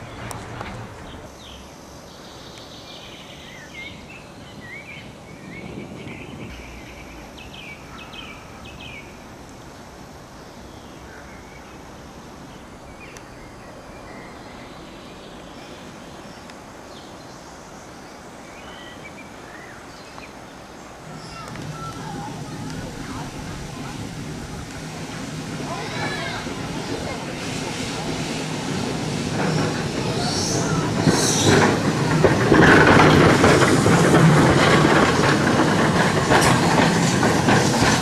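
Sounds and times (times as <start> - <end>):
steady background noise: 0.0 - 38.0
small birds chirping: 12.5 - 24.0.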